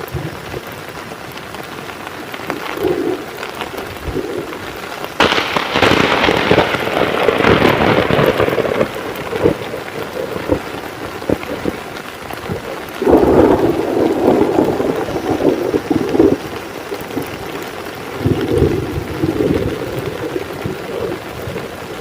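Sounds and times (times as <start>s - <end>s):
heavy rain falling: 0.0s - 22.0s
thunder: 5.2s - 11.8s, 12.5s - 22.0s.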